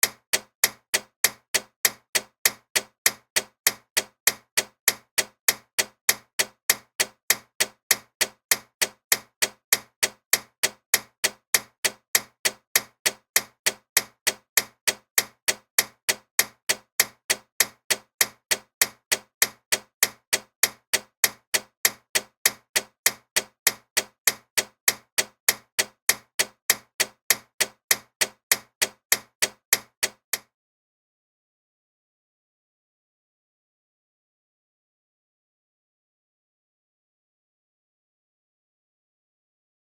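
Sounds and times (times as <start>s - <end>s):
clock ticking: 0.0s - 30.4s.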